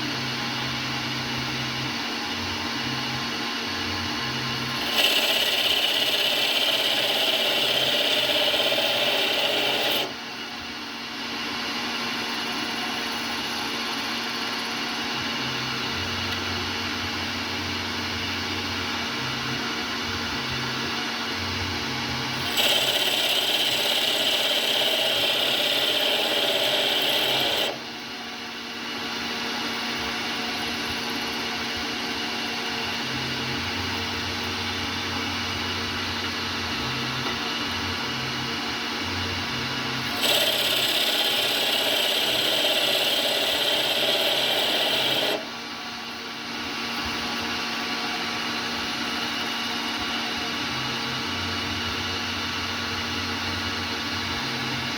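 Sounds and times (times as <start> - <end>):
lathe running: 0.2 - 54.9
lathe cutting with high scraping: 4.5 - 10.2, 22.3 - 28.0, 39.4 - 45.5.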